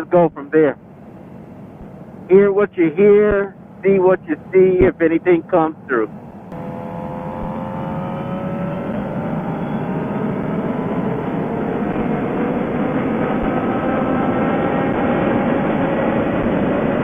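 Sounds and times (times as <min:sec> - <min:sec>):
rush of riding noise: 0:05.9 - 0:17.0
motorcycle engine accelerating: 0:06.5 - 0:17.0.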